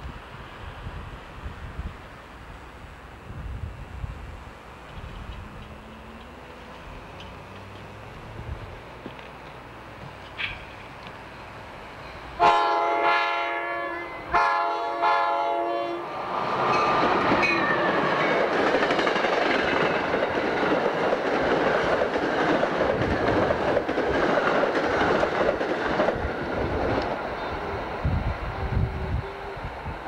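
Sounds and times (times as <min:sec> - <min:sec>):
train wheels on rails: 0:00.0 - 0:13.0, 0:14.3 - 0:30.0
electric locomotive horn blasts: 0:12.4 - 0:16.2
coaches clickety-clack: 0:18.2 - 0:27.2.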